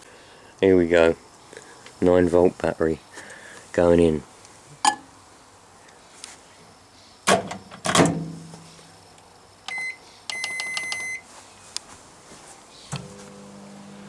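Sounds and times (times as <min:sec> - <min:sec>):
keypad beeps: 0:09.7 - 0:11.2
microwave oven humming: 0:12.9 - 0:14.0.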